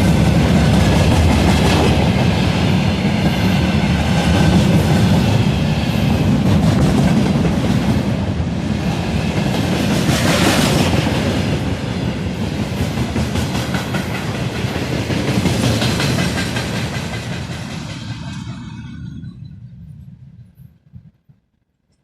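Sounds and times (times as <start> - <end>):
train wheels clattering on rail joints: 0.0 - 8.0, 12.5 - 18.8.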